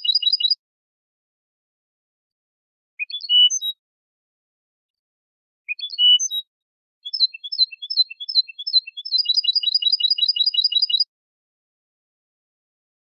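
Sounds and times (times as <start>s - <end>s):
goldfinch song: 0.0s - 0.6s, 3.0s - 3.8s, 5.7s - 11.1s.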